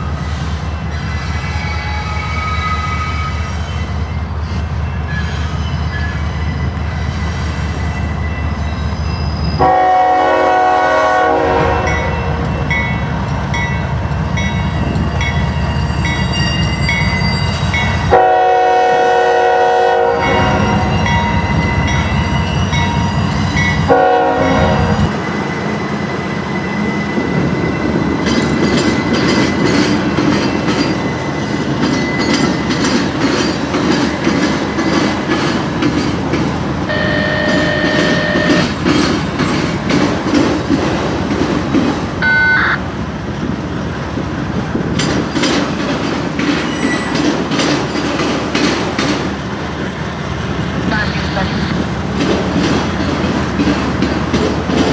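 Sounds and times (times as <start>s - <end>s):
train wheels clicking on rails: 0.0s - 42.2s, 42.9s - 54.9s
locomotive horn blasts: 9.6s - 12.5s, 18.1s - 20.9s, 23.9s - 25.1s, 36.9s - 38.8s, 42.2s - 42.8s.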